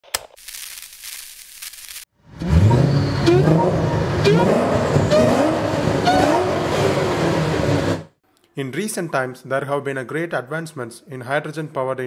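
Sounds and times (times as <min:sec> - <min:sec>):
car engine accelerating: 0:02.2 - 0:08.2.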